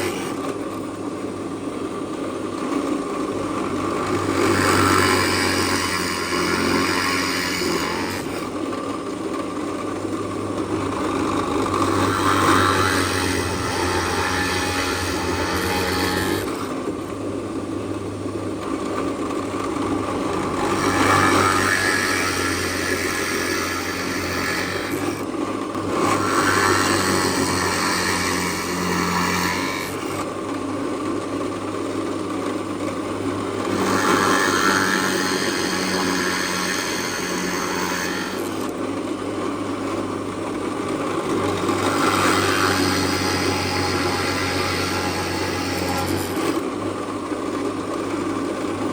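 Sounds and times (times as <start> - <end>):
power tool cutting wood: 0.0 - 0.8, 3.2 - 9.0, 10.5 - 17.1, 19.6 - 30.4, 33.4 - 38.8, 40.8 - 46.8.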